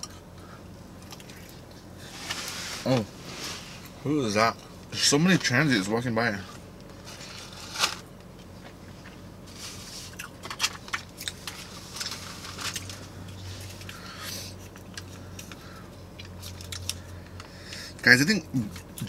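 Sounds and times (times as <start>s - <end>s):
chewing and crunching food: 0.0s - 2.6s, 6.4s - 19.0s.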